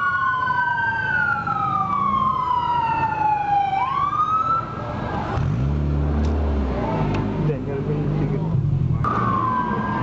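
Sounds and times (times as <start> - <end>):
police sirens wailing: 0.0 - 5.4, 9.0 - 10.0
low traffic rumble: 0.0 - 10.0.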